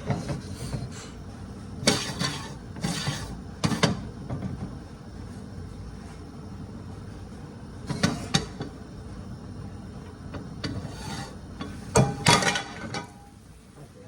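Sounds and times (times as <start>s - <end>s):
metal pot and utensils clanking: 1.8s - 4.0s, 10.6s - 13.3s.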